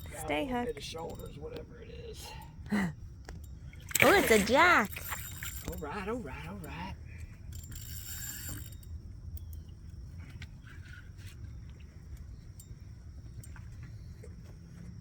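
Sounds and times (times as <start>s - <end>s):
fishing reel clicking: 3.9s - 6.9s, 7.5s - 9.6s.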